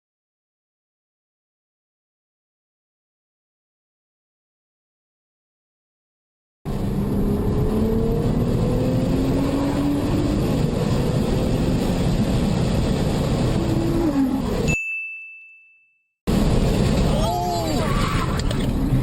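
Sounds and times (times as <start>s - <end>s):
car engine accelerating: 6.7s - 14.7s
road rumble: 6.7s - 14.8s, 16.3s - 19.0s.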